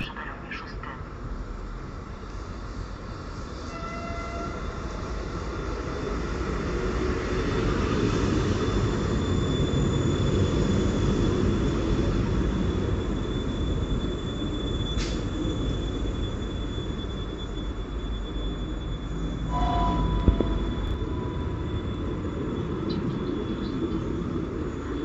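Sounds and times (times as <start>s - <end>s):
train wheels and motors rumbling: 1.0s - 25.0s
high brake squeal: 3.5s - 5.5s, 8.2s - 12.0s, 12.6s - 24.4s.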